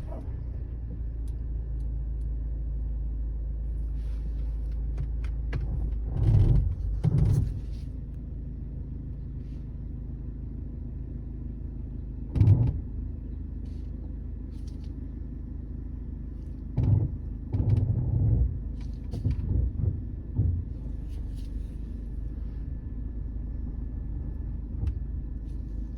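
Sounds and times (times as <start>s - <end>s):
low rumble: 0.0s - 25.9s
thumps and knocks: 16.8s - 21.6s.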